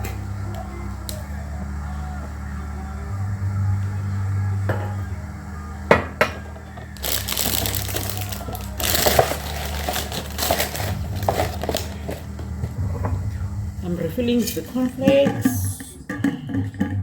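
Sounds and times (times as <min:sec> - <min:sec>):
cornflakes pouring into a container: 0:07.0 - 0:12.0
packet crinkling: 0:07.0 - 0:12.4.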